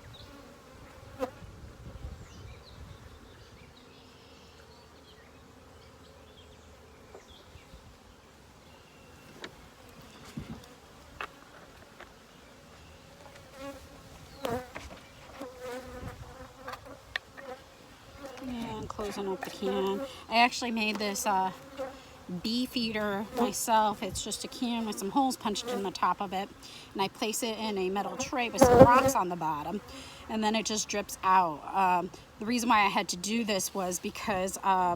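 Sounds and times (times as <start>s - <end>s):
bees buzzing: 8.7s - 34.9s.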